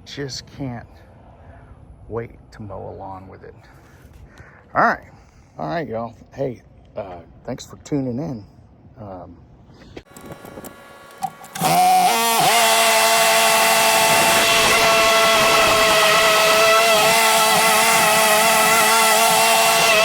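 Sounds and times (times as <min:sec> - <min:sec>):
lawn mower engine running: 0:10.1 - 0:20.0.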